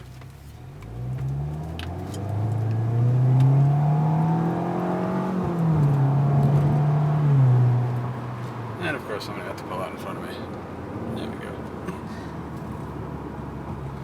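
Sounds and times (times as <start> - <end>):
car exhaust under throttle: 0.0 - 8.8.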